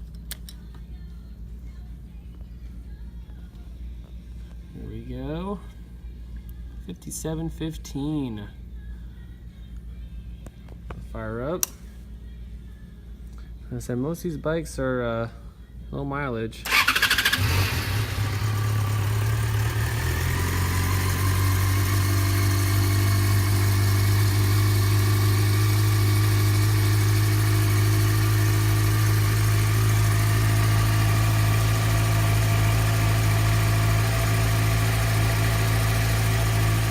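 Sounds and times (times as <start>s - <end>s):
motorcycle engine idling: 16.7s - 36.9s.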